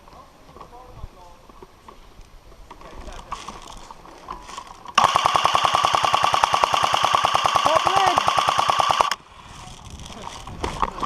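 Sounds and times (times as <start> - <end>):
airsoft gun full-auto rattle: 4.9 - 10.2.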